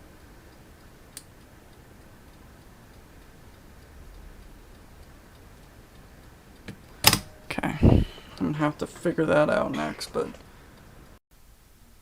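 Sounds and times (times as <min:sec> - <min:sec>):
cassette tape transport ticking: 0:00.0 - 0:07.5
cassette deck click: 0:06.6 - 0:07.4.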